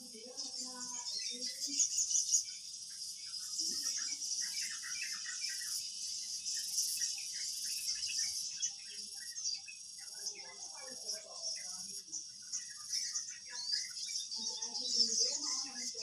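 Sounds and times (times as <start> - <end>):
high-pitched insect chorus: 0.0 - 16.0
small birds chirping: 0.0 - 16.0.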